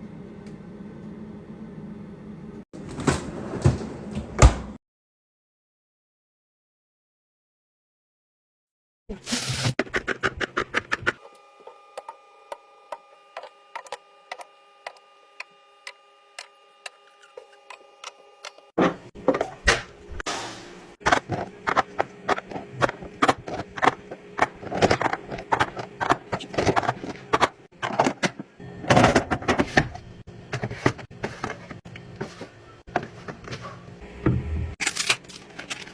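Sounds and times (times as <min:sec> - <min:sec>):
food containers clicking and knocking: 0:21.0 - 0:33.9.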